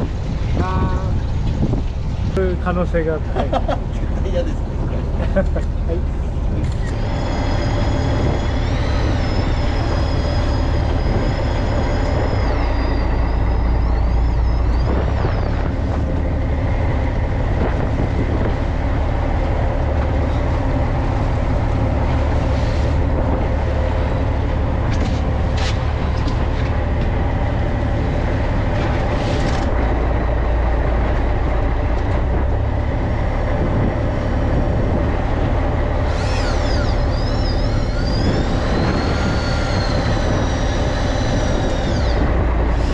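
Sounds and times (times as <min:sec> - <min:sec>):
boat engine low drone: 0:00.0 - 0:42.9
thin high whine: 0:06.0 - 0:16.3, 0:35.9 - 0:42.9.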